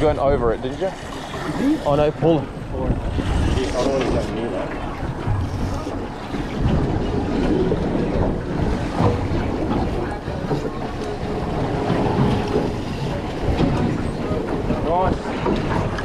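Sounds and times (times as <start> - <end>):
water sloshing around boat: 0.0 - 16.0
wind buffeting microphone: 0.0 - 16.0.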